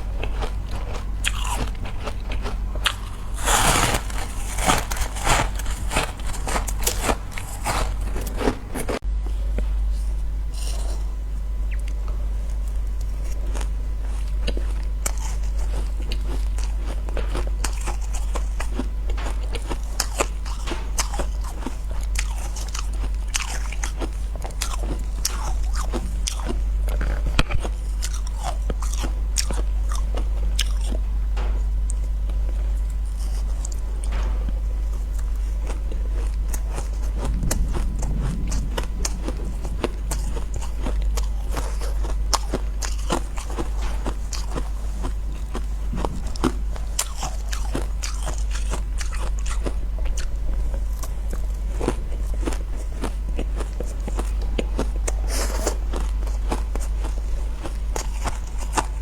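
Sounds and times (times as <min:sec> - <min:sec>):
chewing ice crunches: 0:00.0 - 0:09.0, 0:10.5 - 0:59.0
steady low hum: 0:00.0 - 0:59.0.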